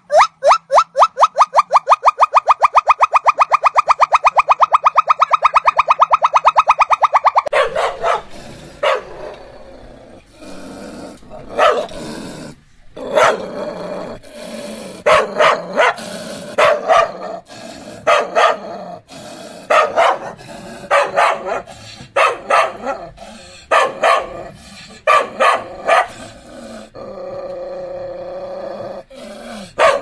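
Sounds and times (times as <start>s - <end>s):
dog barking: 7.4s - 9.4s, 11.5s - 12.0s, 13.1s - 13.5s, 15.0s - 16.0s, 16.6s - 17.3s, 18.0s - 18.7s, 19.7s - 23.1s, 23.7s - 26.2s, 29.8s - 30.0s.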